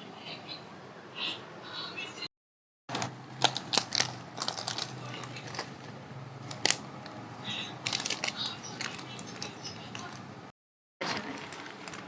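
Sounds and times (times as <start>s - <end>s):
plastic snack packets crinkling: 3.3s - 10.3s, 11.0s - 12.0s.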